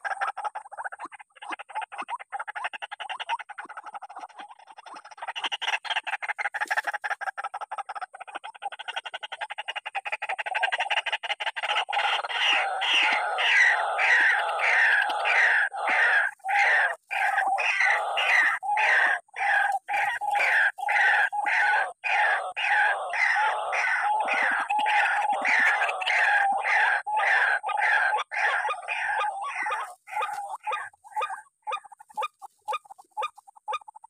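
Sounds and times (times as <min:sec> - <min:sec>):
waterhen harsh two-part call: 0:11.7 - 0:33.8.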